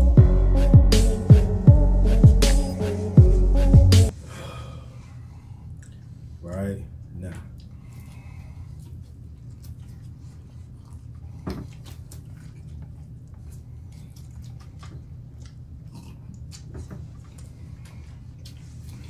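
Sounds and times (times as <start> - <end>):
steady low hum: 0.0 - 19.0
person chewing: 7.5 - 19.0.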